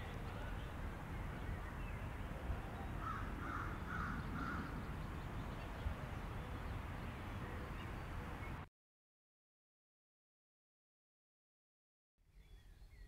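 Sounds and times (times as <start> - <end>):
bird calling: 0.0 - 6.7.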